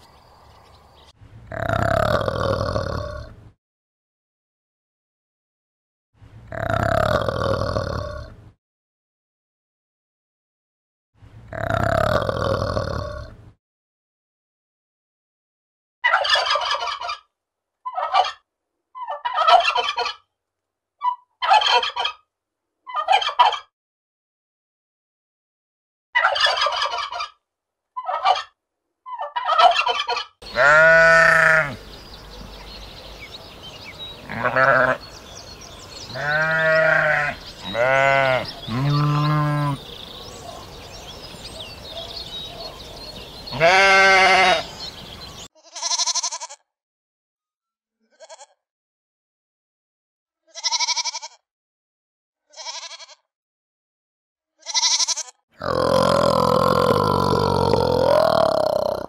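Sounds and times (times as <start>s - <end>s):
turkey gobbling: 16.1s - 17.2s, 17.9s - 18.4s, 19.0s - 20.2s, 21.4s - 22.2s, 22.9s - 23.6s, 26.2s - 27.4s, 28.0s - 28.5s, 29.1s - 30.3s
sheep bleating: 30.4s - 31.9s, 34.2s - 35.2s, 35.9s - 39.9s, 43.5s - 44.7s, 45.6s - 46.7s, 48.1s - 48.6s, 50.5s - 51.4s, 52.5s - 53.3s, 54.6s - 59.0s.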